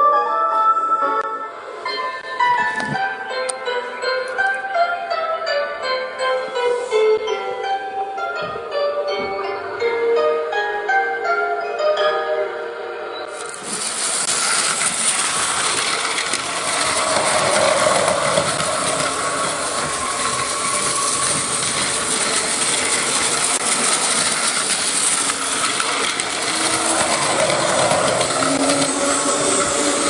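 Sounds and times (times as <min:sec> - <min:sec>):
train rattling: 0:13.3 - 0:30.0.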